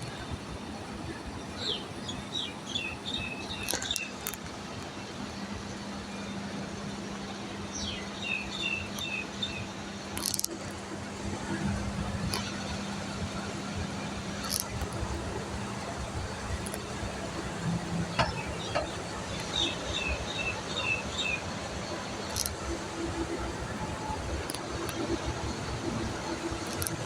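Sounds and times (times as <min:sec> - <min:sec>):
brief clicks: 0:26.7 - 0:27.0.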